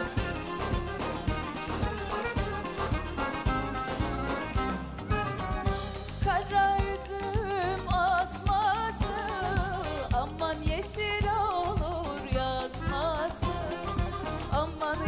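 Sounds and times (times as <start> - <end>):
band with steady beat: 0.0 - 15.0
woman singing with vibrato: 5.8 - 15.0.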